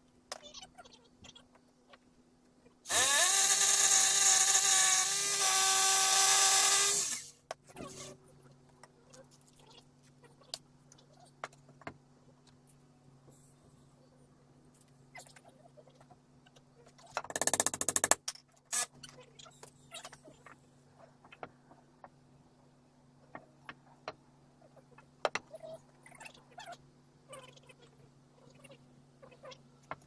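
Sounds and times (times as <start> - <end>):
power tool burst: 2.9 - 7.3
knocks and clicks of handwork: 17.2 - 18.4.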